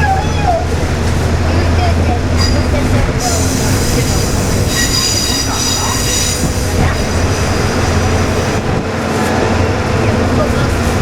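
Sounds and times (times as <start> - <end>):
railcar engine humming: 0.0 - 11.0
wheels squealing against rails: 2.4 - 7.3.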